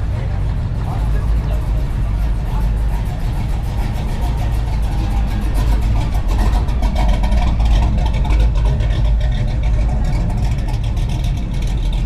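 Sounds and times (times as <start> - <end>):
car engines rumbling: 0.0 - 12.0.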